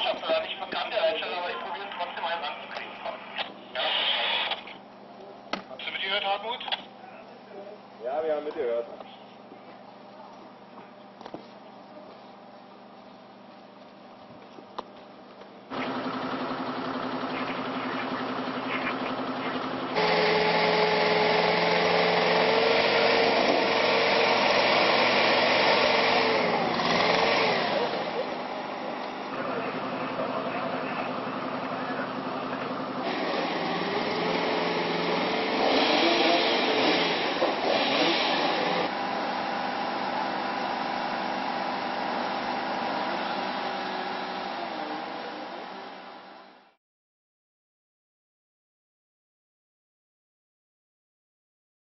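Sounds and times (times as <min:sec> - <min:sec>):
steady mechanical drone: 0:00.0 - 0:10.9, 0:15.6 - 0:46.8
small engine running at high speed: 0:15.7 - 0:46.7.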